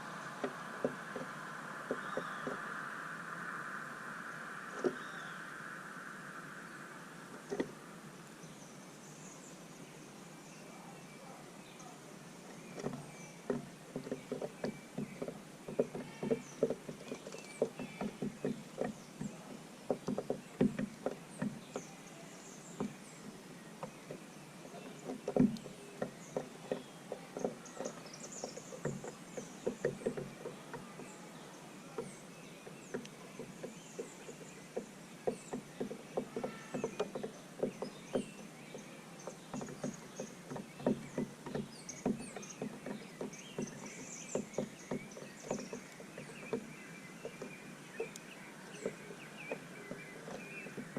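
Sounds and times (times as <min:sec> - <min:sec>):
high bird chirps: 0:00.0 - 0:09.5
birds pecking seed: 0:00.0 - 0:50.9.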